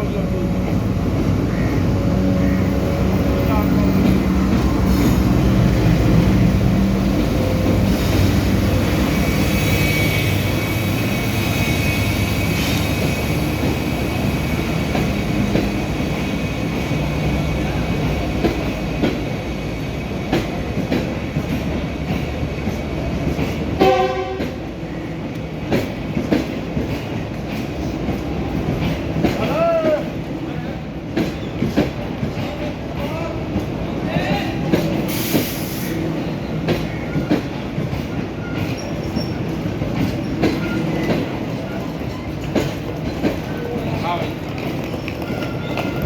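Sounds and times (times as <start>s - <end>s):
train rumbling along track: 0.0s - 46.0s
train horn blast: 9.3s - 12.5s, 23.8s - 24.6s
wheels clicking over rail joints: 36.3s - 46.0s.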